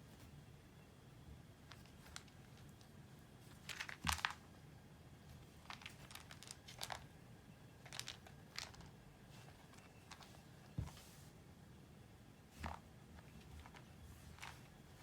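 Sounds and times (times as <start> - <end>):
crinkling rustling: 1.7 - 4.4, 5.3 - 7.1, 7.8 - 11.2, 12.6 - 15.0.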